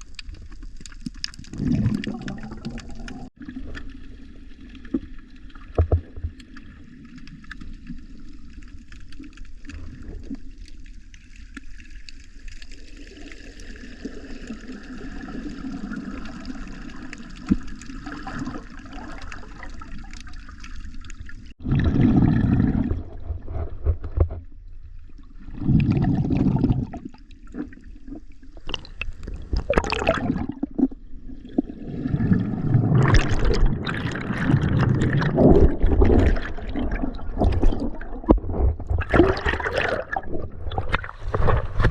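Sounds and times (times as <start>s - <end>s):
sea water sloshing: 0.0s - 41.9s
loud bubbling bursts: 1.5s - 3.3s, 21.6s - 23.3s, 28.6s - 30.8s, 31.8s - 41.2s.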